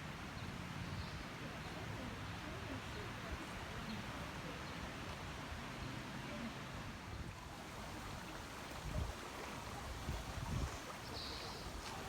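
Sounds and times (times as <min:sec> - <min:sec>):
flowing water: 0:00.0 - 0:12.0
wind gust on microphone: 0:07.1 - 0:12.0.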